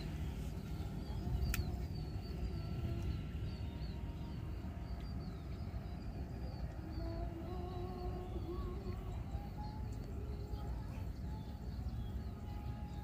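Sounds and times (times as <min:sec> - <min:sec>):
small birds chirping: 0:00.0 - 0:13.0
steady low rumble: 0:00.0 - 0:13.0
sharp click: 0:01.4 - 0:01.7.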